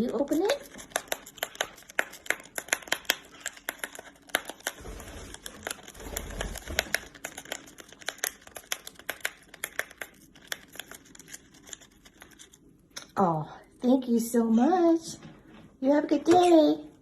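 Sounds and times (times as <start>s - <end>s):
parrot tearing wrapper with beak: 0.1s - 12.7s.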